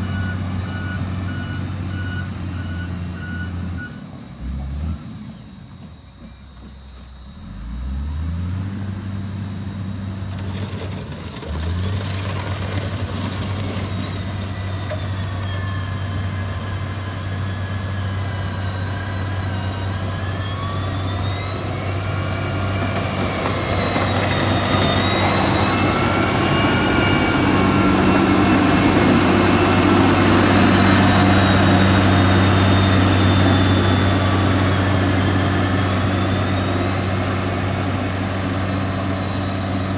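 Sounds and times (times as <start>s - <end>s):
heavy diesel engine running: 0.0s - 39.9s
high wavering whine: 14.3s - 39.9s.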